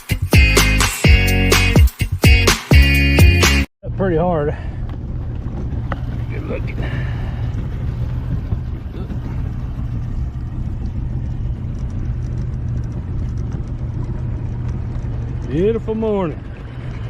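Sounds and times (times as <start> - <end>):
outboard motor running: 4.2 - 17.0.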